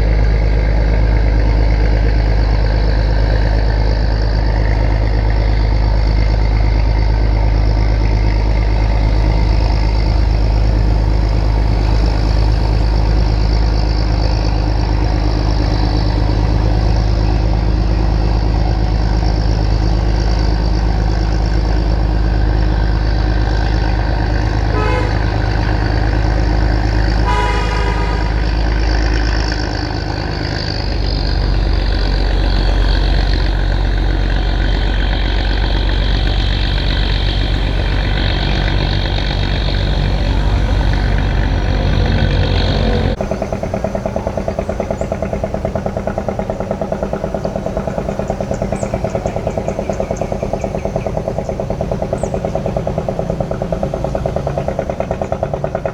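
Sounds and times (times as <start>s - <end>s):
boat engine running: 0.0s - 55.9s
engine chugging fast: 0.0s - 55.9s
horn toots: 24.3s - 30.5s.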